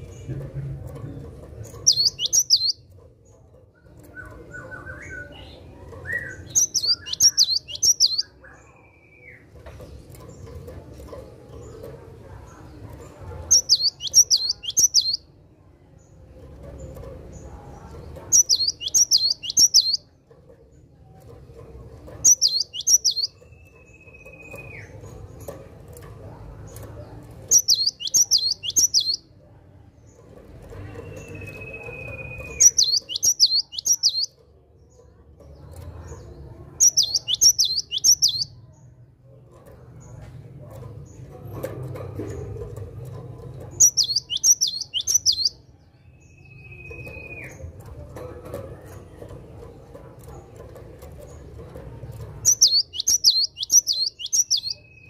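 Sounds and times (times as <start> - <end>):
bird singing sharp high notes: 22.3 - 23.3, 27.5 - 29.2, 31.3 - 34.3, 36.8 - 38.5, 52.5 - 54.8.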